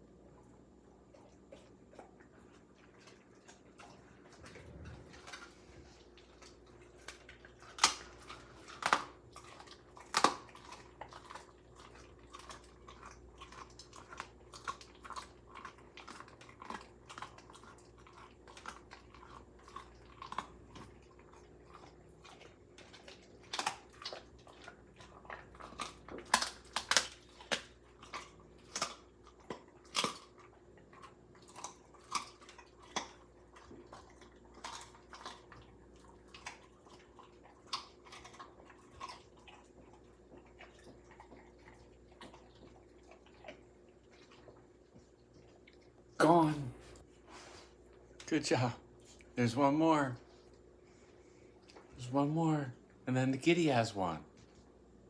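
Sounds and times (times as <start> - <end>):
dog chewing: 0.0 - 46.2, 46.8 - 55.0
bone crunching: 6.4 - 17.6, 22.8 - 30.4.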